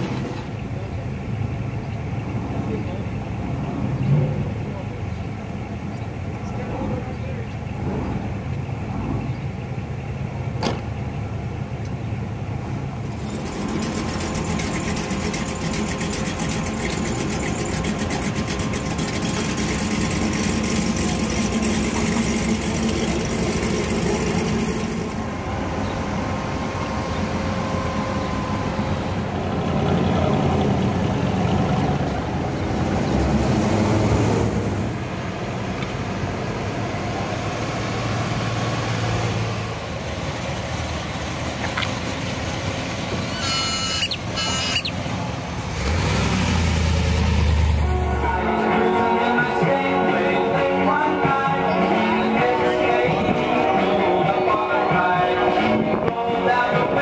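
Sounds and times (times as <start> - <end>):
car engines idling: 0.0 - 57.0
loud engine with rapid firing pulses: 13.0 - 35.0, 36.0 - 47.9.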